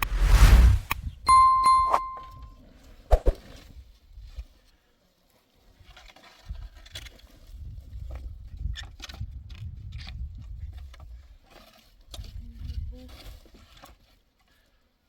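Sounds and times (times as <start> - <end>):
loud whoosh: 0.0 - 2.3
metallic ding: 1.3 - 2.4.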